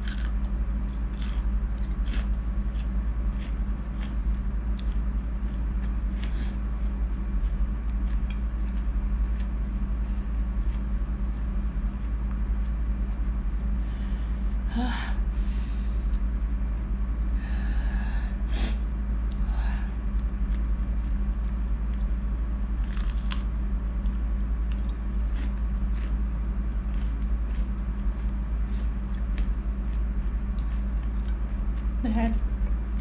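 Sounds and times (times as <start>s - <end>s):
chewing and mouth clicks: 0.0s - 9.6s, 22.8s - 32.0s
steady low hum: 0.0s - 33.0s.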